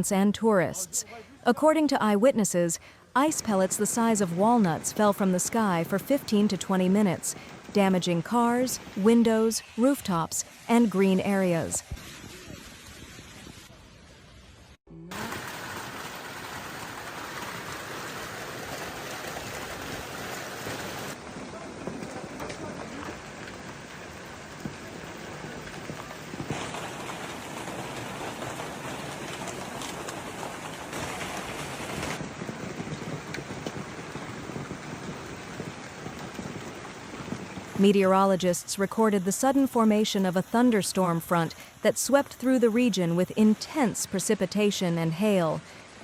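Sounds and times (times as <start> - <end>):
hail and heavy rain pelting: 15.1 - 38.2.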